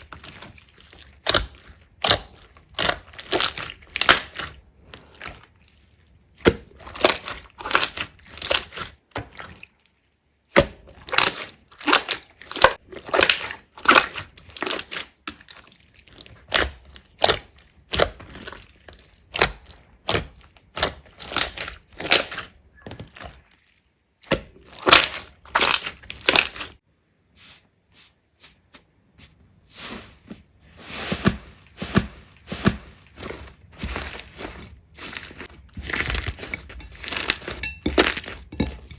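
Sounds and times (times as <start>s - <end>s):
slime crackling and popping: 0.0s - 5.2s, 16.3s - 22.5s.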